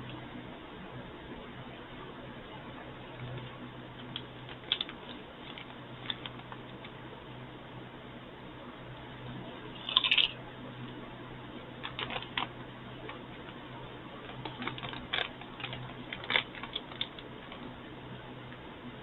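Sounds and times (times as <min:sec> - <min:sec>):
potato chips crunching: 0:04.1 - 0:06.8, 0:09.8 - 0:10.4, 0:11.8 - 0:13.2, 0:14.3 - 0:17.6.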